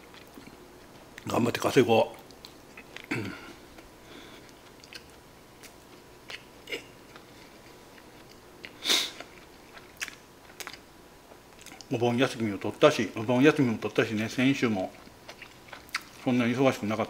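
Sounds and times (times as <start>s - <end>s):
person chewing rice ball: 2.2s - 11.9s, 14.8s - 16.3s.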